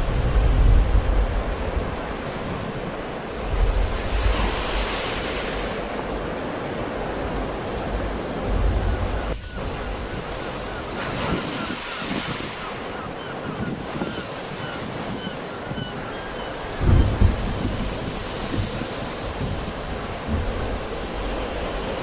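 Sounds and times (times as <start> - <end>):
sea waves breaking: 0.0 - 22.0
wind buffeting microphone: 0.0 - 22.0.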